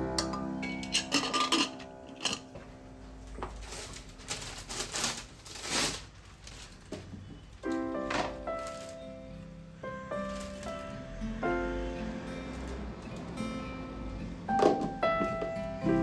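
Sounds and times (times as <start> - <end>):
soft music: 0.0 - 4.2, 7.6 - 16.0
small hard objects clinking: 0.2 - 2.5.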